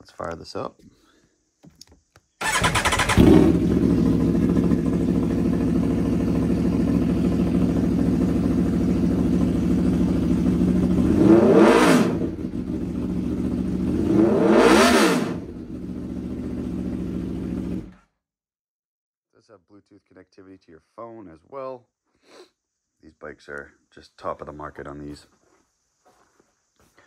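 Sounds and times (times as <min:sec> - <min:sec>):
motorcycle engine idling: 0:02.4 - 0:11.4, 0:12.2 - 0:14.2, 0:15.4 - 0:18.0
motorcycle engine starting: 0:02.4 - 0:18.1.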